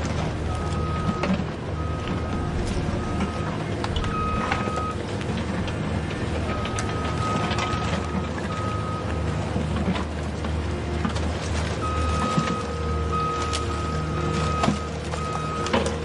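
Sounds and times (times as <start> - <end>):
steady engine-like hum: 0.0 - 16.0
reversing beeper high beeps: 0.4 - 5.0, 11.8 - 15.8.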